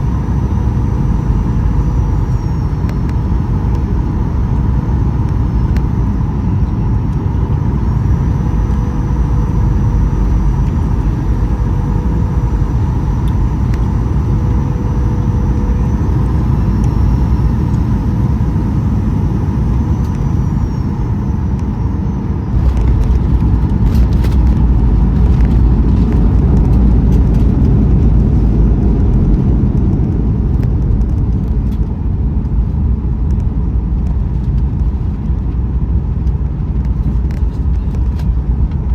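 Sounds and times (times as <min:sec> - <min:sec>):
thin high whine: 0:00.0 - 0:27.5
aircraft cabin engine rumble: 0:00.0 - 0:38.9.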